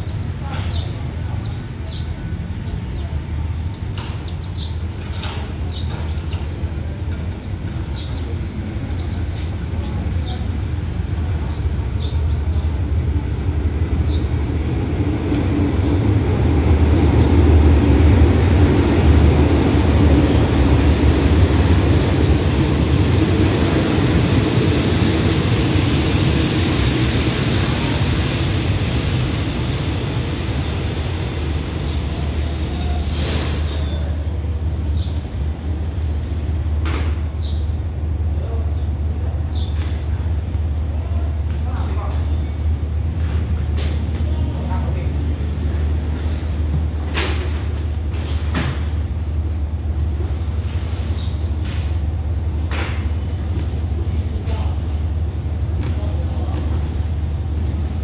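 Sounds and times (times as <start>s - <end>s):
diesel locomotive engine rumble: 0.0s - 58.0s
train wheels rolling: 13.1s - 37.6s.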